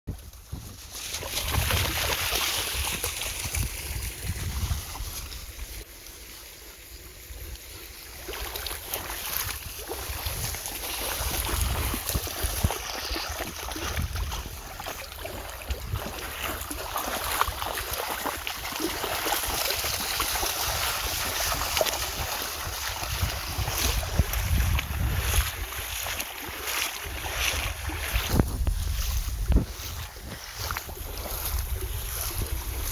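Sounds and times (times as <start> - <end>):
dogs splashing in water: 0.1 - 5.2, 8.2 - 32.9
wind rumbling on microphone: 0.1 - 5.9, 6.9 - 32.9
rush of running water: 6.6 - 28.6.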